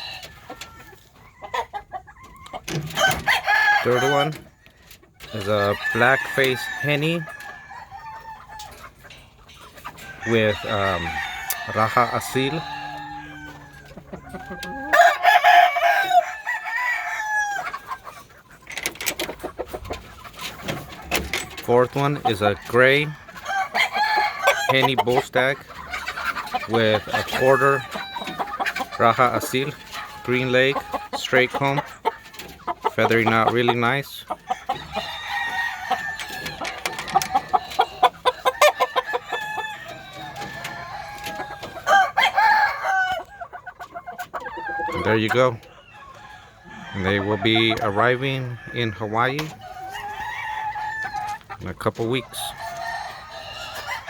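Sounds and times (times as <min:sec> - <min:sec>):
chickens clucking: 0:00.0 - 0:54.0
roosters crowing: 0:00.0 - 0:54.0
rooster crowing: 0:02.9 - 0:04.4, 0:10.2 - 0:13.8, 0:14.6 - 0:17.7, 0:23.4 - 0:24.8, 0:34.6 - 0:37.9, 0:38.5 - 0:43.3.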